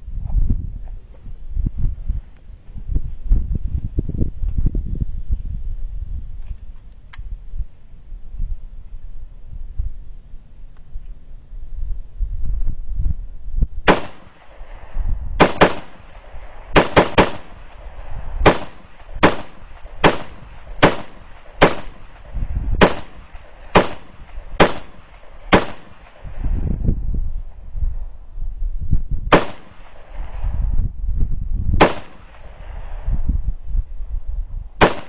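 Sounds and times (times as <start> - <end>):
rifle gunshots with echo: 13.9 - 26.3, 29.3 - 30.2, 31.8 - 32.9, 34.8 - 35.0.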